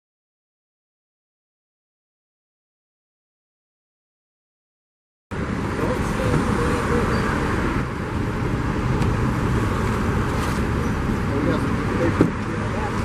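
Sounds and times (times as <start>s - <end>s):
road traffic rumble: 5.3s - 13.0s.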